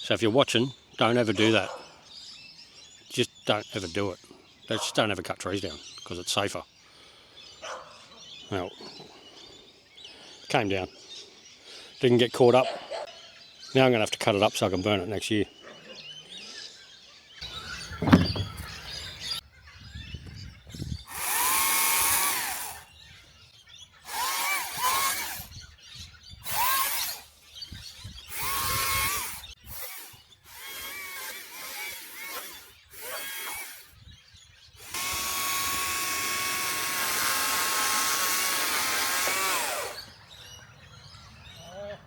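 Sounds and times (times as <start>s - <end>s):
sharp thump: 17.8s - 19.0s
chainsaw revving and cutting: 21.1s - 22.9s, 24.1s - 25.5s, 26.4s - 27.3s, 28.3s - 33.9s, 34.8s - 40.2s.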